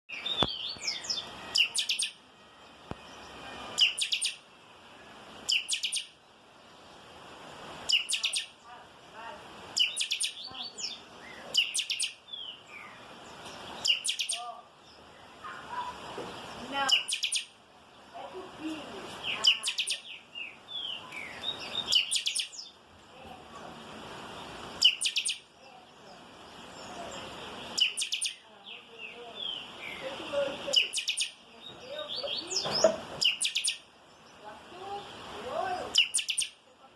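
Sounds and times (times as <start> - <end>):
bird singing high clear notes: 0.1 - 4.5, 5.5 - 6.2, 7.9 - 8.6, 9.8 - 13.0, 13.8 - 14.6, 16.7 - 17.5, 19.2 - 22.8, 24.8 - 25.5, 27.7 - 30.1, 30.7 - 33.8, 35.9 - 36.6.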